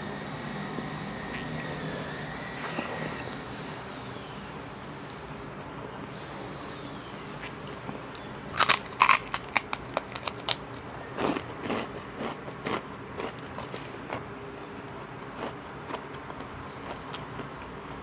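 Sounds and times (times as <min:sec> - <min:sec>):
soft chewing: 0:07.4 - 0:18.0
crunching of fried pork rinds: 0:08.1 - 0:14.3, 0:15.0 - 0:18.0.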